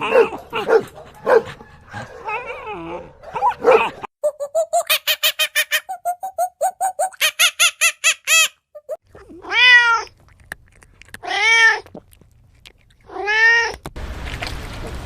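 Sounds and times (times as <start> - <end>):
cat meowing: 9.2 - 10.2, 11.2 - 11.9, 13.1 - 13.8.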